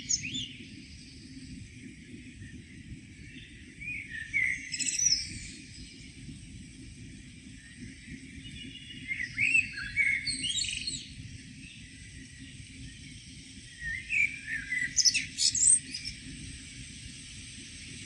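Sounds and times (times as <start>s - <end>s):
songbird twittering: 0.0s - 0.6s, 8.4s - 11.8s, 13.6s - 16.2s.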